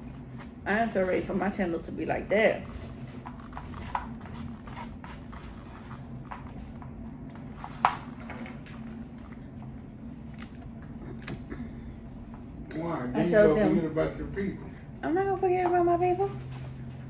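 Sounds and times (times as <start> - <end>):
person chewing food: 2.9 - 12.6.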